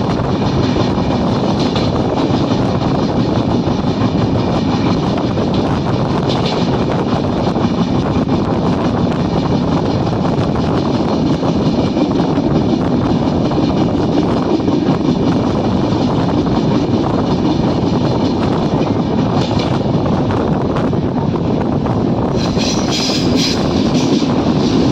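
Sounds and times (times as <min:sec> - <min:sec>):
train coaches rumbling on track: 0:00.0 - 0:24.9.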